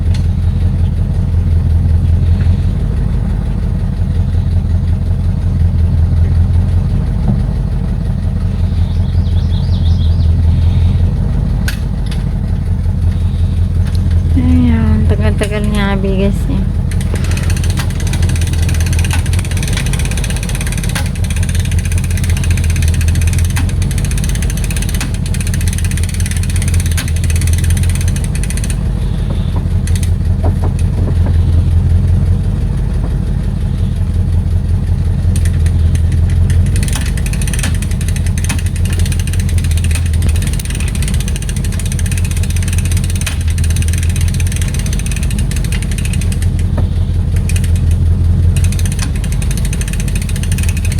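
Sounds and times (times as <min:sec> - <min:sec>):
vehicle engine running: 0:00.0 - 0:50.9.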